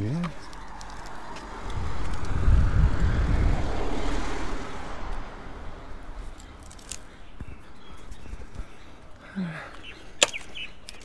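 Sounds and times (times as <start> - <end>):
car passing by: 0.1 - 8.5.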